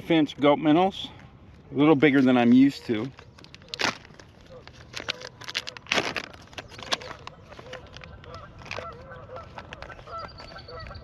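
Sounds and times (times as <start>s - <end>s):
geese honking: 6.9s - 11.0s.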